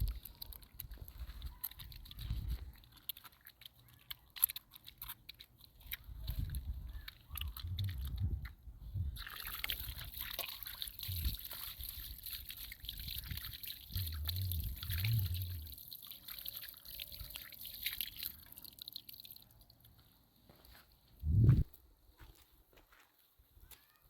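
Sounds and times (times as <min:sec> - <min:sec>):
water trickling and splashing: 0:00.0 - 0:20.2
dull low thuds: 0:21.2 - 0:21.8.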